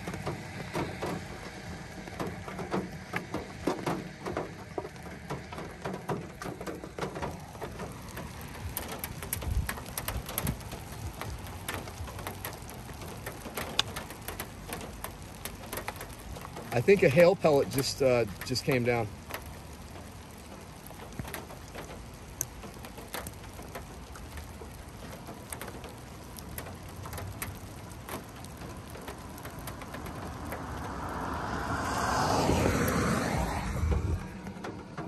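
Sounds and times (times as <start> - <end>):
rain hiss: 0.0 - 35.0
raindrops ticking on car: 0.0 - 35.0
rushing noise: 30.0 - 35.0.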